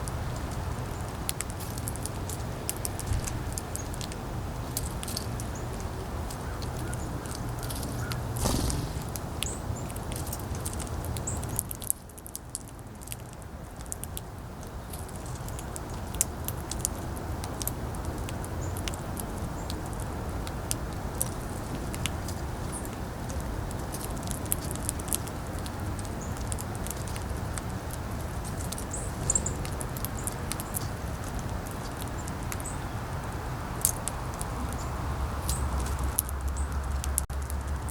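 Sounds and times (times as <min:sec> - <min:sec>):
wind rumbling on microphone: 0:00.0 - 0:11.8
birds pecking and cracking seeds: 0:00.0 - 0:37.9.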